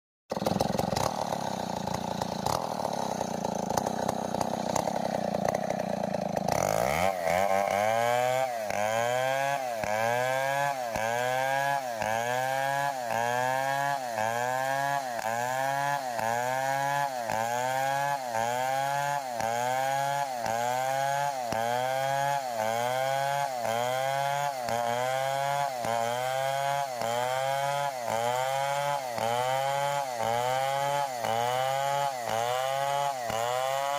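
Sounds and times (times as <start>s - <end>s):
chainsaw running: 0.3s - 33.9s.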